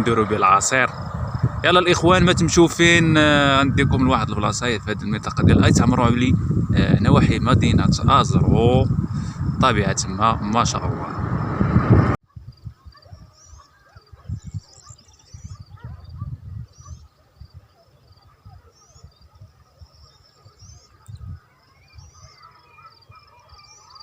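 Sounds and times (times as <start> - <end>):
wind buffeting microphone: 0.0 - 24.0
small birds chirping: 12.5 - 24.0.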